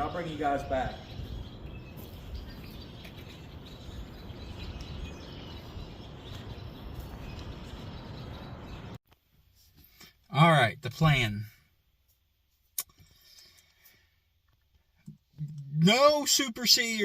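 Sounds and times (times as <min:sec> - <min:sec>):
outdoor background noise: 0:00.0 - 0:17.0
faint bird chirps: 0:00.8 - 0:09.0.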